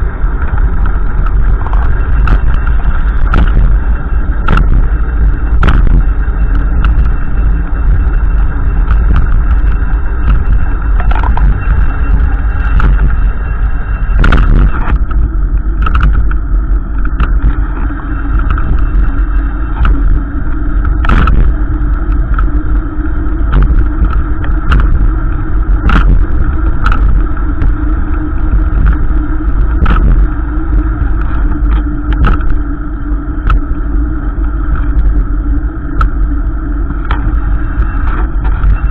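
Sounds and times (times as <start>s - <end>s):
car rumbling on the move: 0.0s - 38.9s
sharp clicks and knocks: 0.3s - 3.8s, 4.4s - 7.2s, 8.8s - 13.2s, 14.1s - 20.2s, 20.8s - 22.6s, 23.5s - 30.3s, 31.0s - 32.6s.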